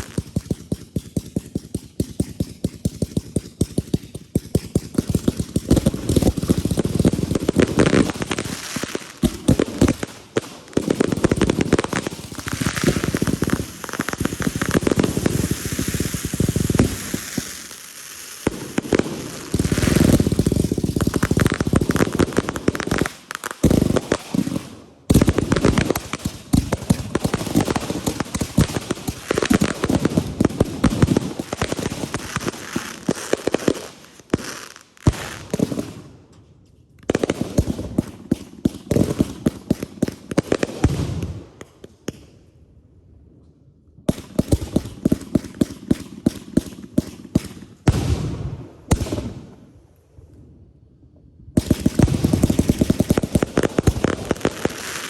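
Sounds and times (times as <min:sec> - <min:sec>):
fireworks banging and crackling: 0:00.0 - 0:36.2, 0:37.0 - 0:42.4, 0:44.1 - 0:49.5, 0:51.6 - 0:55.0.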